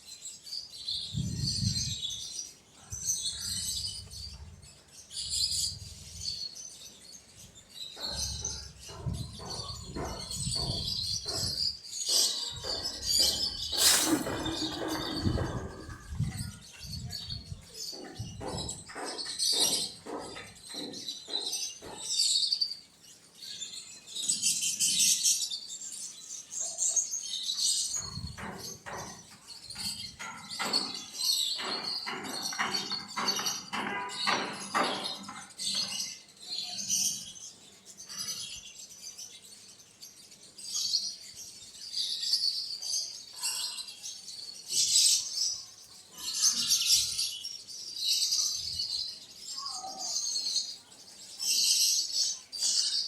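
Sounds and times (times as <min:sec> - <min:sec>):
quails chirping: 0:08.0 - 0:16.3.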